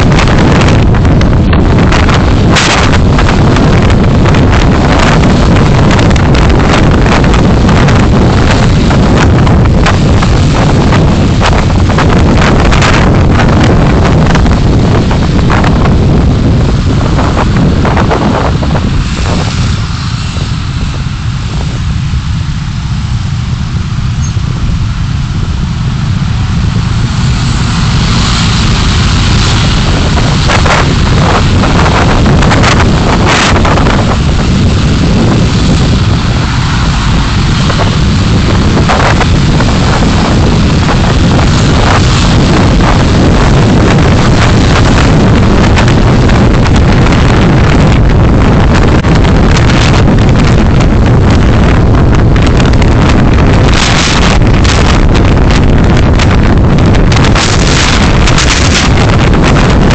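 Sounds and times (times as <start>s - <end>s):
road and wind noise in car: 0.0s - 59.9s.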